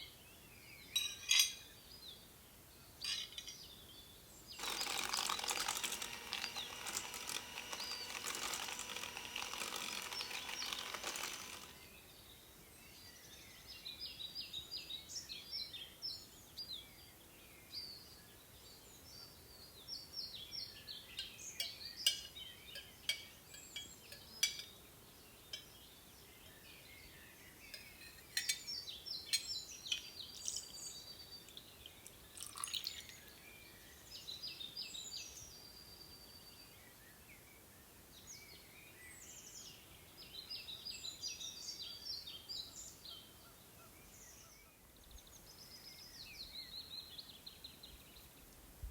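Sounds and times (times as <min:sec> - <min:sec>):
songbirds chirping: 0:00.0 - 0:48.6.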